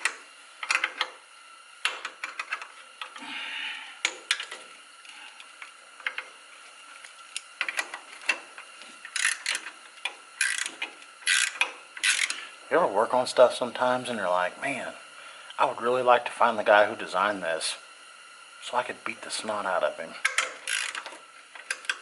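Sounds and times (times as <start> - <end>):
quick ratchet clicks: 0.0 - 1.2, 9.1 - 12.4, 20.2 - 22.0.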